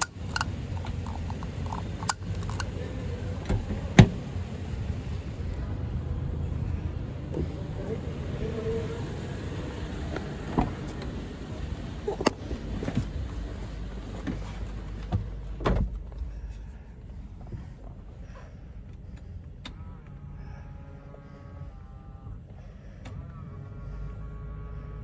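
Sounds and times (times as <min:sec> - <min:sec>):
sharp clicks and knocks: 0:00.0 - 0:02.8
low steady rumble: 0:00.0 - 0:25.0
heavy thump: 0:03.5 - 0:04.3.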